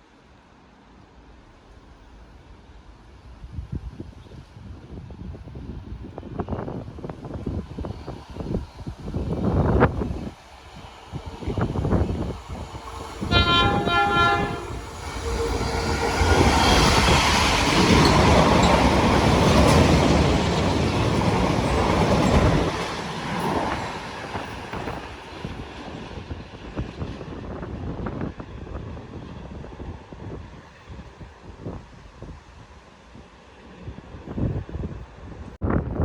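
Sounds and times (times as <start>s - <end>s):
train passing at speed: 0.0s - 35.6s
diesel train horn blast: 13.2s - 17.0s.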